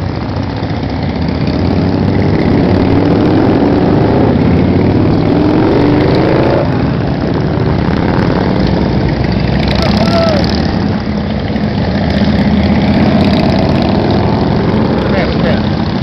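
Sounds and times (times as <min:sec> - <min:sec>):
motorcycle accelerating: 0:00.0 - 0:16.0
motorcycle engines running: 0:00.0 - 0:16.0.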